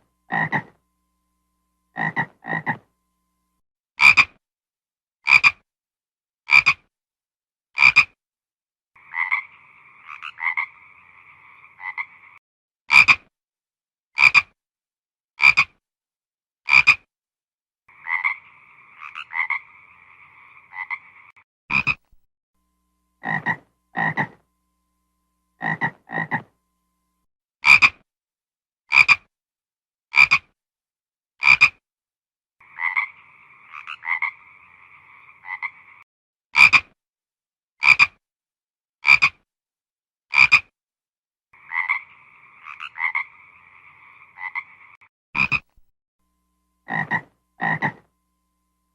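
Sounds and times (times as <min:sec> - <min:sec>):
frog croaking: 0:00.3 - 0:00.8, 0:01.9 - 0:02.9, 0:05.3 - 0:05.6, 0:06.5 - 0:06.9, 0:07.8 - 0:08.2, 0:09.0 - 0:13.2, 0:14.2 - 0:14.6, 0:15.4 - 0:15.8, 0:16.7 - 0:17.1, 0:17.9 - 0:22.1, 0:23.2 - 0:24.4, 0:25.6 - 0:26.6, 0:28.9 - 0:29.3, 0:30.1 - 0:30.5, 0:31.4 - 0:31.8, 0:32.6 - 0:36.0, 0:36.6 - 0:36.9, 0:37.8 - 0:38.2, 0:39.0 - 0:39.4, 0:40.3 - 0:40.7, 0:41.6 - 0:45.8, 0:46.8 - 0:48.1
frog raspy trill: 0:00.3 - 0:00.8, 0:01.9 - 0:02.9, 0:04.0 - 0:04.4, 0:05.3 - 0:05.6, 0:06.5 - 0:06.9, 0:07.8 - 0:08.2, 0:09.0 - 0:13.3, 0:14.2 - 0:14.6, 0:15.4 - 0:15.8, 0:16.7 - 0:17.1, 0:17.9 - 0:22.1, 0:23.2 - 0:24.4, 0:25.6 - 0:26.6, 0:27.6 - 0:28.0, 0:28.9 - 0:29.3, 0:30.1 - 0:30.5, 0:31.4 - 0:31.8, 0:32.6 - 0:36.0, 0:36.6 - 0:37.0, 0:37.8 - 0:38.2, 0:39.0 - 0:39.4, 0:40.3 - 0:40.7, 0:41.6 - 0:45.8, 0:46.8 - 0:48.1.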